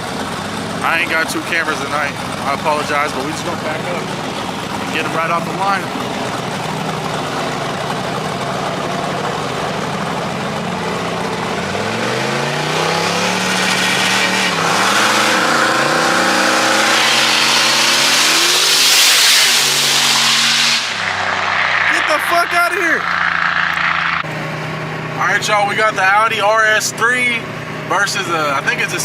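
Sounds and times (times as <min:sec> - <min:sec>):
car engines idling and revving: 0:00.0 - 0:29.0
rushing noise: 0:11.1 - 0:24.3.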